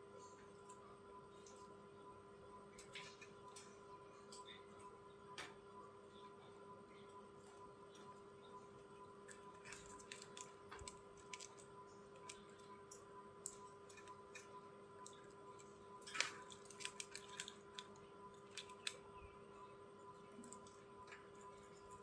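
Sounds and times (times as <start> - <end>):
electrical hum: 0.0 - 22.0
budgies pecking and chewing: 6.9 - 22.0.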